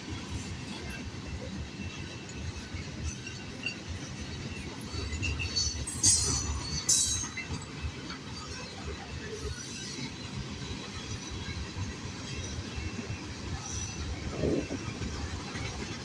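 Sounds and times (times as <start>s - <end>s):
freight train rolling on rails: 0.0s - 16.0s
metallic wheel squeals: 5.2s - 7.6s.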